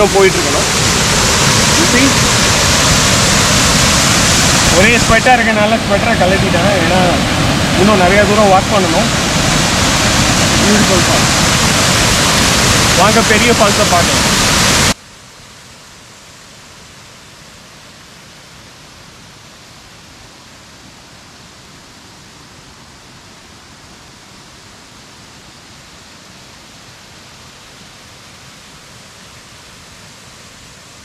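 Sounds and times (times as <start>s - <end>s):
river water rushing: 0.0s - 15.1s.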